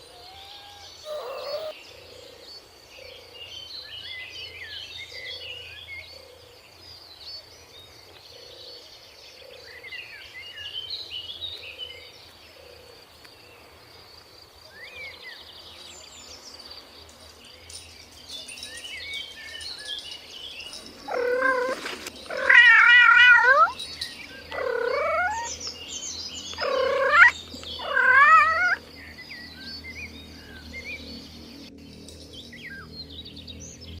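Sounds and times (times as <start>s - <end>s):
cat meowing: 0.0s - 1.7s, 21.1s - 23.8s, 24.5s - 25.5s, 26.6s - 28.8s.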